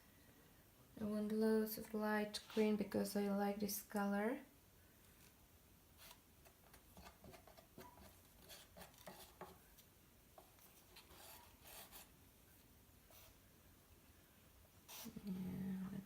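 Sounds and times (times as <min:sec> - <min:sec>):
paint scraping in a cup: 0:10.4 - 0:12.1, 0:14.9 - 0:15.3.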